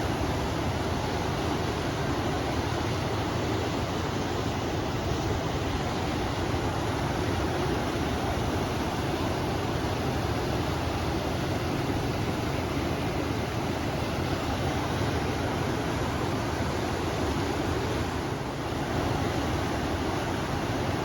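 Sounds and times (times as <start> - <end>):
river water rushing: 0.0 - 21.0
wind: 0.0 - 21.0.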